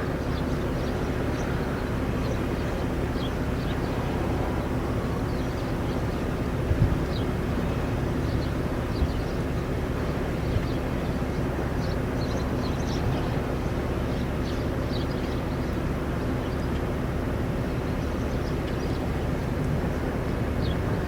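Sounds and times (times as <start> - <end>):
wind rumble: 0.0 - 14.0
vehicle engine humming: 0.0 - 21.0.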